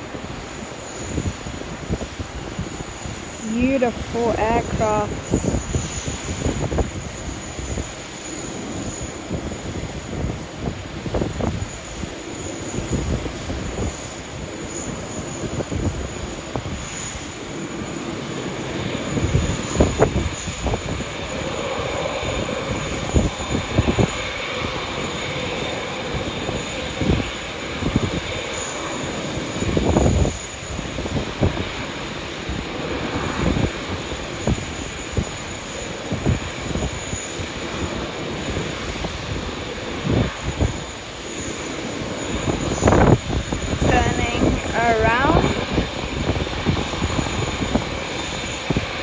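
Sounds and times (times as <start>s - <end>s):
low buffeting bursts: 0.0s - 8.1s, 29.0s - 49.0s
jet engines running: 0.0s - 49.0s.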